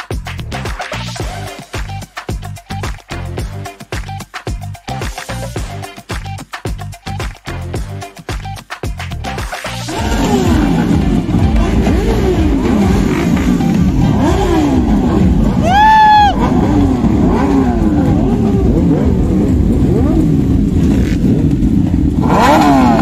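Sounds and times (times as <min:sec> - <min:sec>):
motorcycle engines revving: 0:09.9 - 0:23.0.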